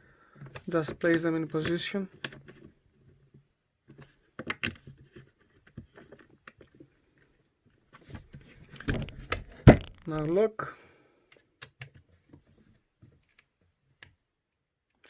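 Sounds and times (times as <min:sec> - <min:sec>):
handling knocks: 0:08.8 - 0:10.4
small clicks and taps of tools: 0:11.3 - 0:12.0.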